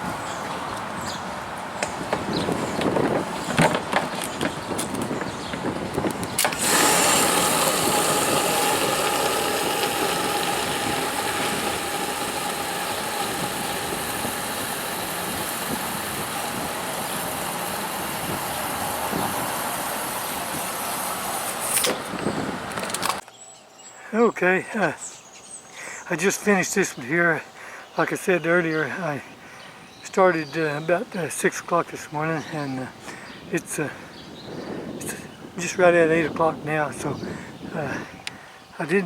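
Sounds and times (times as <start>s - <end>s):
riding mower engine running: 1.4s - 23.2s.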